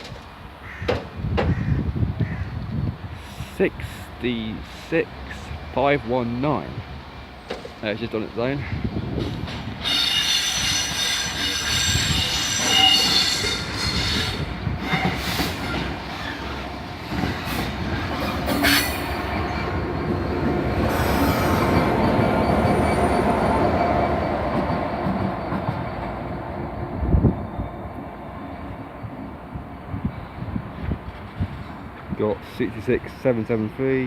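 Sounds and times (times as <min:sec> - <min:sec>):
locomotive wheels squealing: 0:09.8 - 0:16.6, 0:17.3 - 0:24.8.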